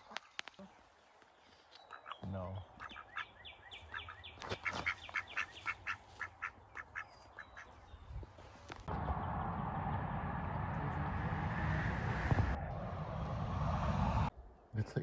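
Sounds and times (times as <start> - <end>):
ducks quacking: 1.9 - 7.9
loud steady rushing noise: 8.9 - 14.3.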